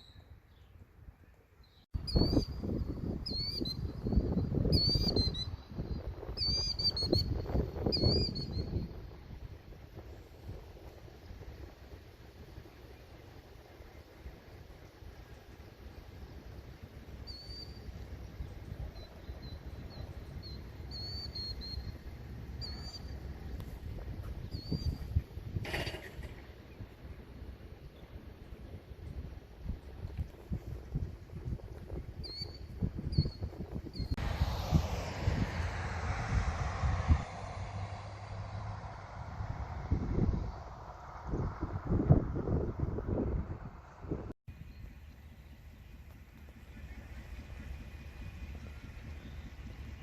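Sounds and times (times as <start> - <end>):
wind rumble on microphone: 0.0 - 50.0
small bird chirping: 32.2 - 34.2.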